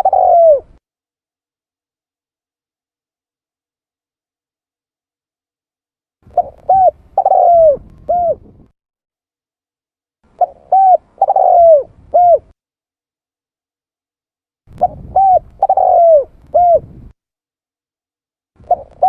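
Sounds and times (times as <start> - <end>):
dove cooing: 0.0 - 0.8, 6.3 - 8.6, 10.3 - 12.6, 14.7 - 17.1, 18.6 - 19.0.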